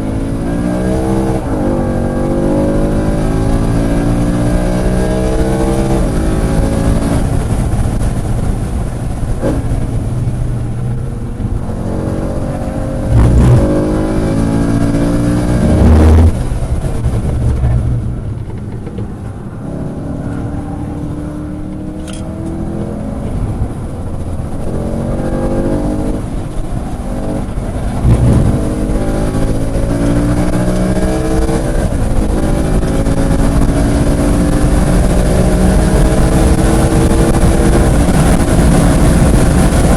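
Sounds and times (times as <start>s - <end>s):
road and wind noise: 0.0s - 39.9s
sports car engine revving: 11.5s - 39.9s
loud low thumps: 13.0s - 14.0s, 27.9s - 29.1s.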